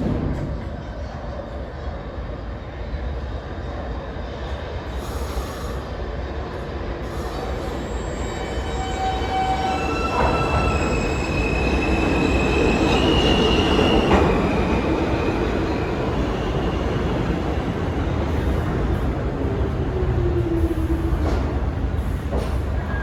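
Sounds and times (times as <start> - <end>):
subway train rumbling on rails: 0.0 - 23.0
high wheel squeal: 7.1 - 16.8.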